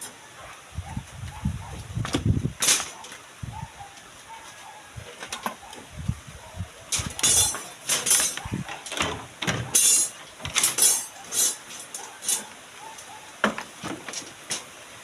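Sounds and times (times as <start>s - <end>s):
metal tools scraping and clattering: 6.9s - 12.6s, 14.0s - 14.7s.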